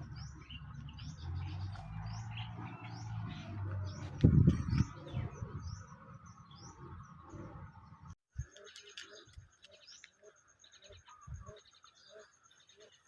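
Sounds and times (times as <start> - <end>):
low bumps: 0.0 - 8.2
small birds chirping: 0.0 - 13.0.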